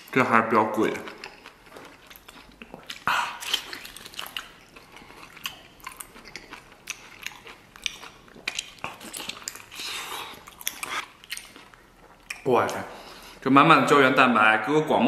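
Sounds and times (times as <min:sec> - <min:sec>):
wet chewing and gnawing: 0:00.0 - 0:13.4
mouth clicks and smacks: 0:00.9 - 0:12.9.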